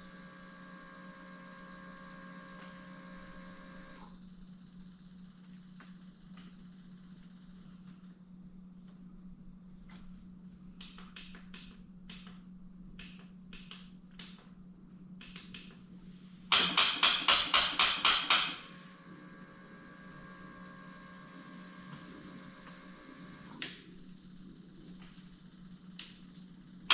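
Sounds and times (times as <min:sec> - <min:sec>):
low steady hum: 0:00.0 - 0:16.5.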